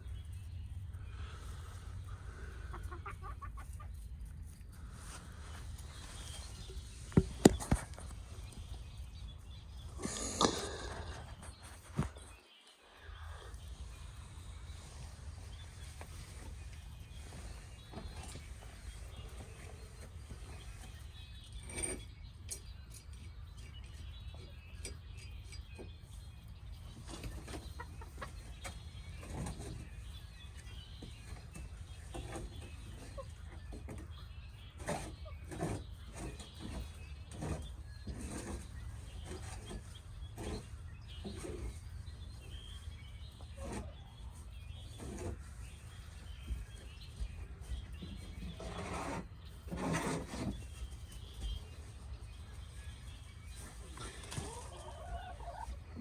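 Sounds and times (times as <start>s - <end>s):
hens clucking: 0.7s - 12.4s, 26.8s - 56.0s.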